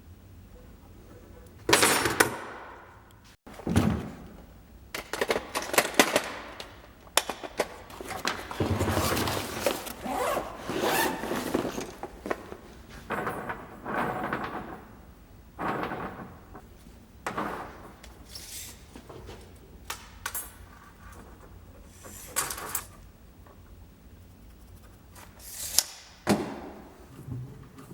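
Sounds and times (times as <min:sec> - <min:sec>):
objects being handled: 0:07.3 - 0:14.0.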